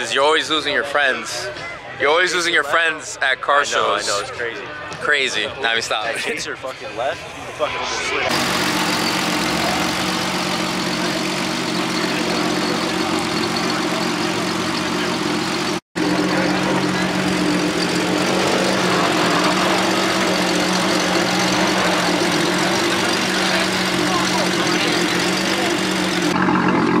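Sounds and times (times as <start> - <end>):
crowd murmur: 0.6 - 26.4
car engine idling: 8.2 - 27.0.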